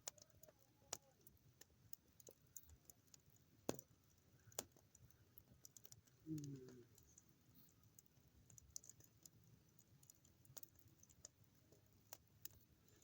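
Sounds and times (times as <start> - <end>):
campfire crackling: 0.0 - 13.0
low vocal sound: 6.2 - 6.9.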